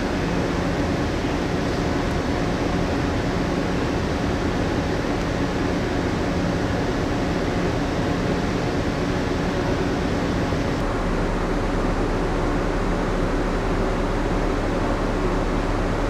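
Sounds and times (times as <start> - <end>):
ship machinery hum: 0.0 - 12.0
air conditioning rush: 0.0 - 16.0.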